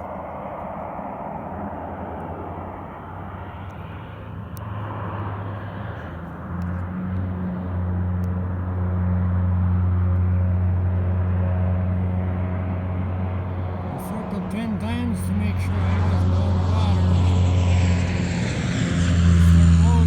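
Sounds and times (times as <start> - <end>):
aircraft droning overhead: 0.0 - 20.0.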